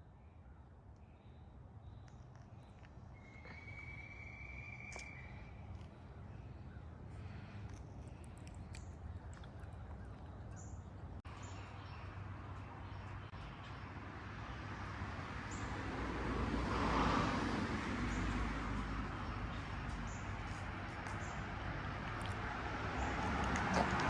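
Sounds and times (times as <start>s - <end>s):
vehicle passing: 14.0s - 24.0s.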